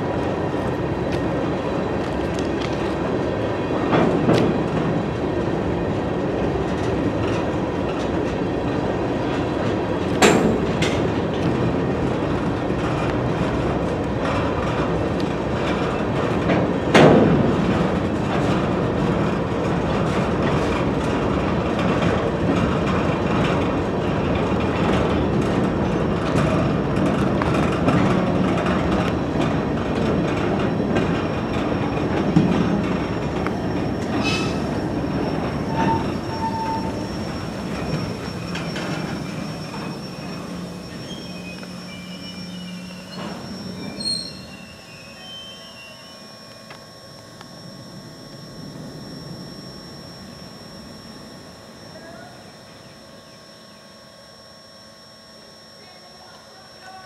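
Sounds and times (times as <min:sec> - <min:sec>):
train wheels rumbling on rails: 0:00.0 - 0:51.6
high wheel squeal: 0:33.5 - 0:53.8.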